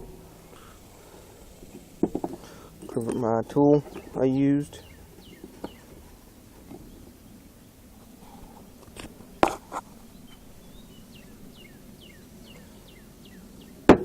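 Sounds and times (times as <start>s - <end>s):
bird chirping: 2.4s - 6.0s, 6.6s - 7.4s, 10.0s - 13.8s.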